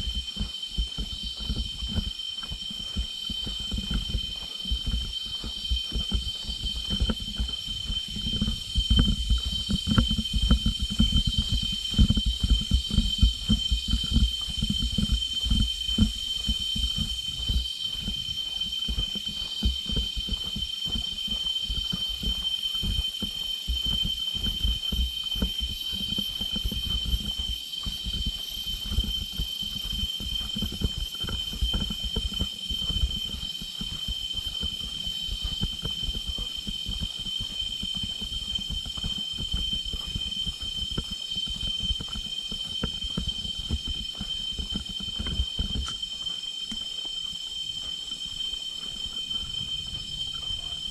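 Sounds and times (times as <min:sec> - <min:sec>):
insects droning: 0:00.0 - 0:50.9.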